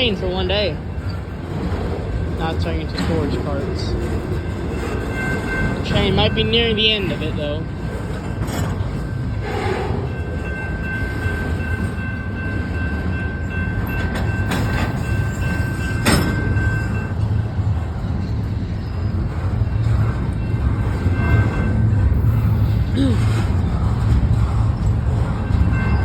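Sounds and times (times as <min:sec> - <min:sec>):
rumble of wheels on rail: 0:00.0 - 0:26.0.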